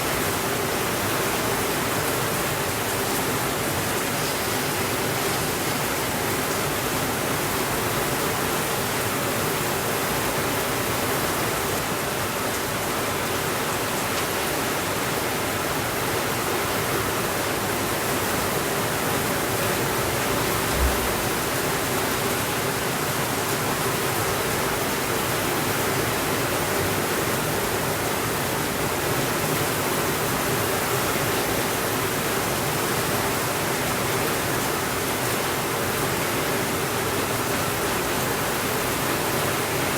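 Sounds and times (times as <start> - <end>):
steady rainfall: 0.0 - 39.9
low thump: 20.6 - 21.7.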